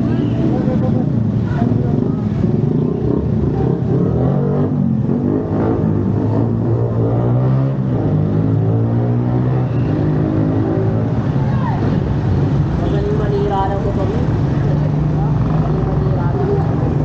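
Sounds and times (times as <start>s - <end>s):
vehicle engine revving: 0.0s - 12.8s.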